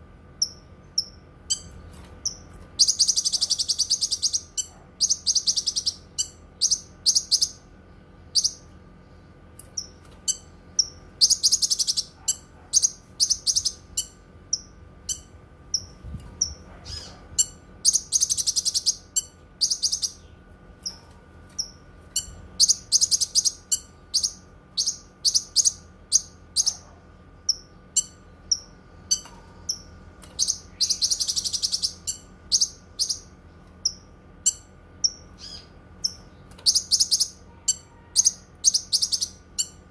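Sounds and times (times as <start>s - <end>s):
sharp bird chirps: 0.4s - 7.6s
songbird trilling: 0.4s - 7.6s, 9.8s - 21.0s, 21.6s - 26.8s, 27.5s - 39.8s.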